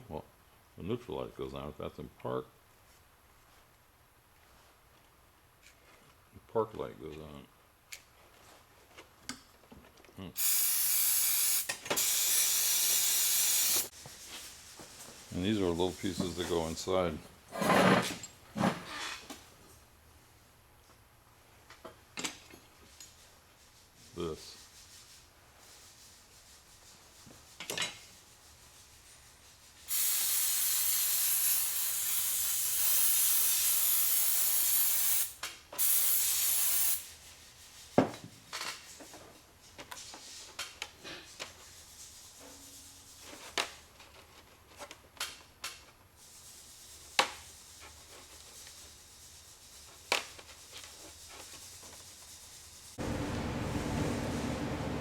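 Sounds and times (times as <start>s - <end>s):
pressurised spray hissing: 10.4s - 13.9s, 29.9s - 37.2s, 51.7s - 55.0s
steady hum: 53.0s - 55.0s.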